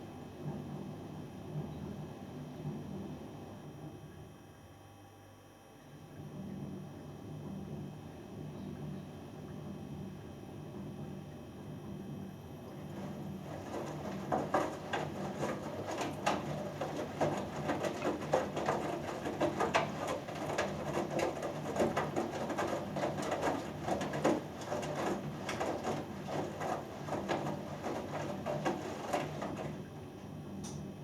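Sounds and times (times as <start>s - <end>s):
washing machine motor hum: 0.0s - 4.8s, 5.7s - 31.0s
wet laundry slapping in drum: 12.7s - 31.0s.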